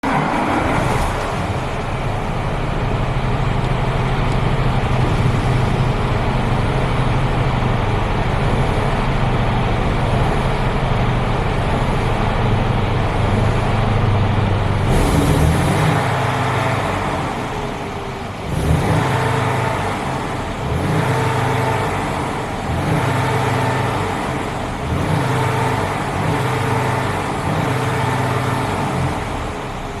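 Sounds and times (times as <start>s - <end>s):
truck diesel engine idling: 1.3s - 15.0s.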